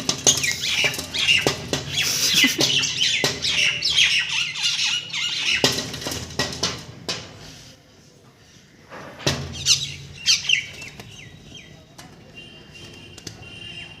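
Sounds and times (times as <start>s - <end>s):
sharp taps and knocks: 0.0s - 4.0s, 5.4s - 7.4s
pet birds squawking: 0.3s - 5.8s, 9.6s - 11.4s.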